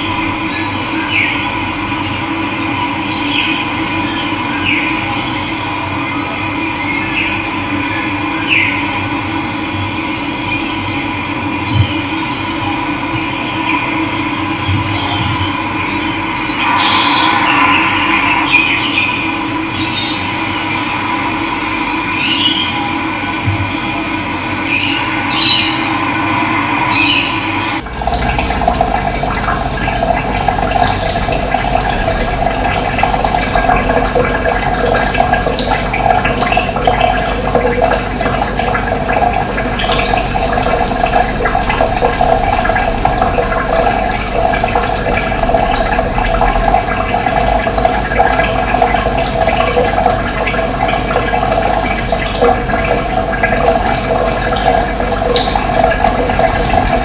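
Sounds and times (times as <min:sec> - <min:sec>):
stream water rushing: 0:16.5 - 0:19.3.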